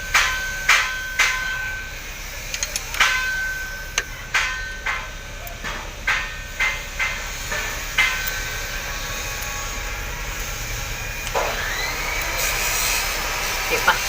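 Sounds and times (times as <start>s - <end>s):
metallic clicks of hand tools: 2.5s - 3.2s.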